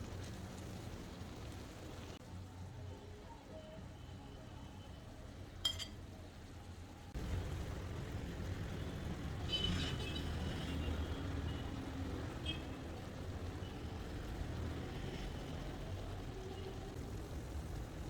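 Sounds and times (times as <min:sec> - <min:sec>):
light metallic clinks: 0:05.6 - 0:06.0.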